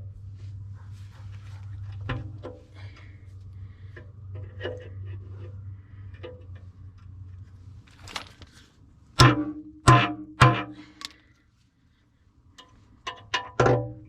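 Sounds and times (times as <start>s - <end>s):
steady low hum: 0.0s - 14.0s
small metallic clinks: 7.8s - 8.6s.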